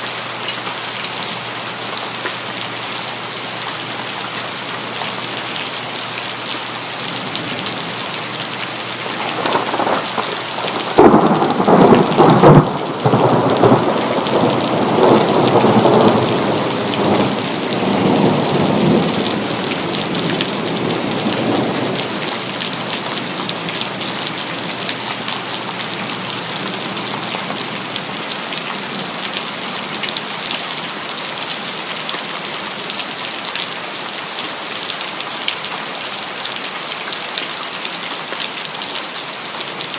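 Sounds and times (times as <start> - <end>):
steady rain: 0.0 - 39.9
thunder crack and rumble: 9.0 - 22.7.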